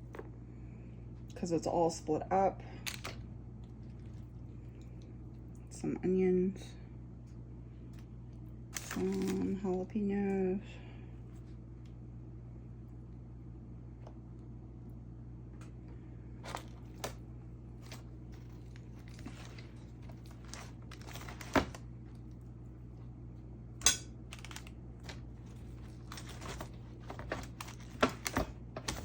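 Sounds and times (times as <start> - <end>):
steady low hum: 0.0 - 29.0
rustling: 24.4 - 29.0.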